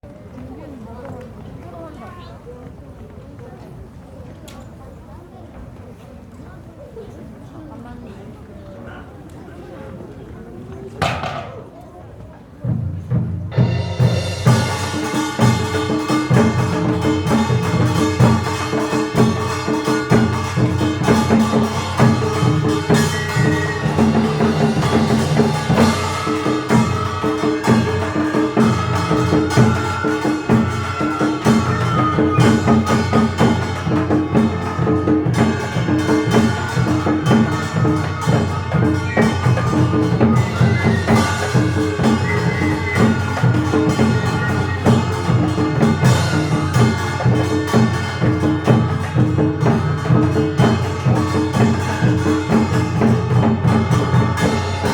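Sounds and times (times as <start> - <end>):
drums and percussion beat: 11.0 - 11.7, 12.6 - 54.9
traditional orchestra melody: 13.5 - 54.9.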